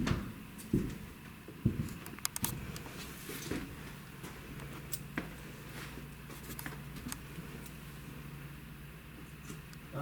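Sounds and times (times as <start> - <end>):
footsteps on wooden floor: 0.0 - 2.0, 2.6 - 7.1.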